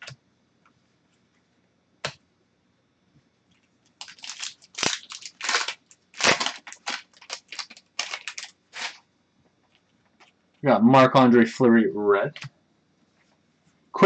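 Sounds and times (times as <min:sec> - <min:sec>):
wrapper crinkling and tearing: 0:03.9 - 0:09.0.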